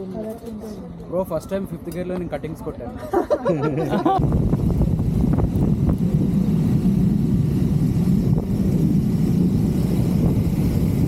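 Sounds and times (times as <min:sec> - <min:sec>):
motorcycle engine at speed: 0:04.2 - 0:11.0.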